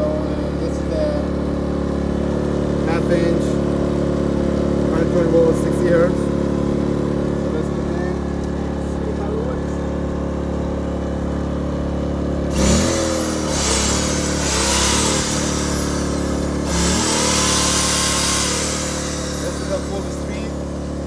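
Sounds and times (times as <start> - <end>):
generator engine running: 0.0 - 21.0
hissing appliance: 12.5 - 21.0.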